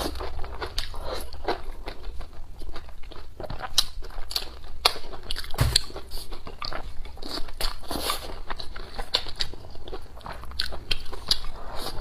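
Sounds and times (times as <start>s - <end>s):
person biting and chewing food: 2.7s - 12.0s
dull thump: 5.6s - 6.1s.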